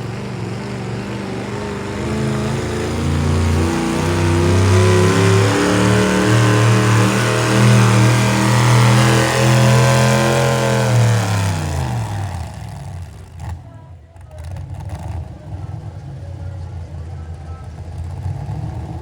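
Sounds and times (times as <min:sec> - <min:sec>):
engine running at high revs: 0:00.0 - 0:13.7.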